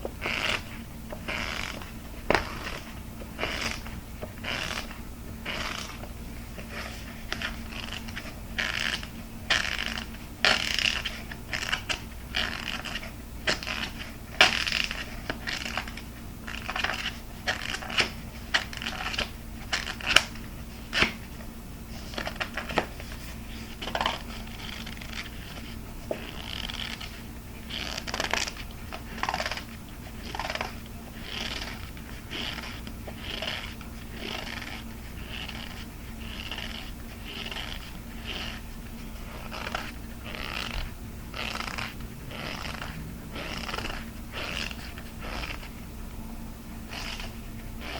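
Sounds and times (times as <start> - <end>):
fingernails tapping and scratching: 23.7 - 38.6, 39.2 - 45.7.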